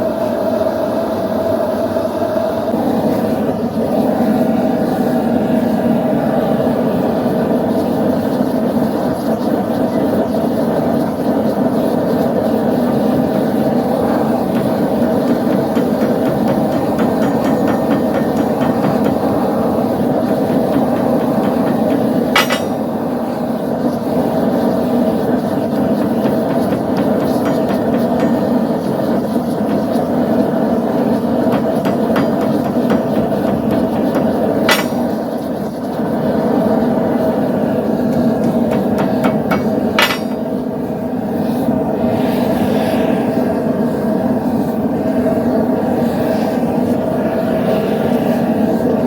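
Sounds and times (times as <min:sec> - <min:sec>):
gas forge burner rushing: 0:00.0 - 0:49.0
hammer strike on metal: 0:14.5 - 0:19.4, 0:20.2 - 0:22.9, 0:31.5 - 0:35.3, 0:38.2 - 0:40.5.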